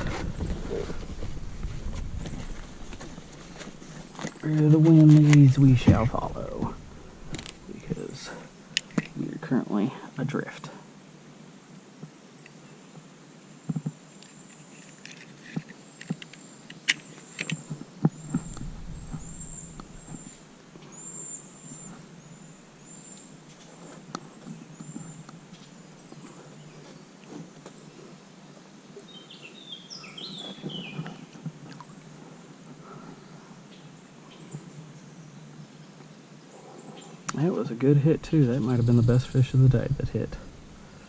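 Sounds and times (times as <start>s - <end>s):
wind rumble on microphone: 0.0s - 4.2s, 5.5s - 8.0s, 18.1s - 20.4s
small birds chirping: 0.0s - 9.8s, 14.1s - 31.4s, 32.8s - 41.0s.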